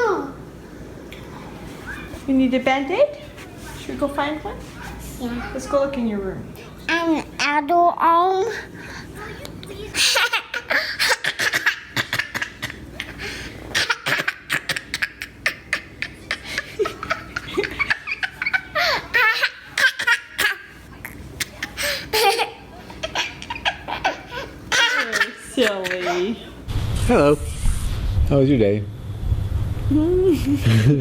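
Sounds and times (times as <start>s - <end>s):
child laughing: 9.7s - 26.4s.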